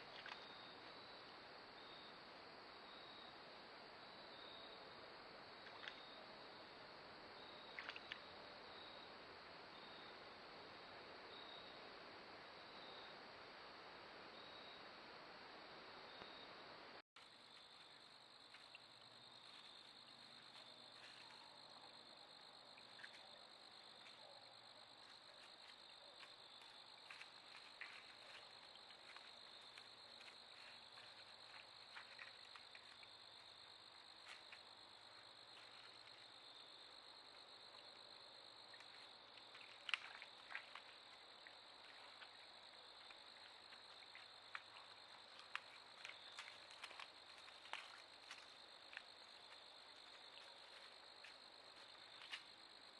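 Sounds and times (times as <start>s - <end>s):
insects chirring: 0.0s - 2.2s, 17.2s - 52.9s.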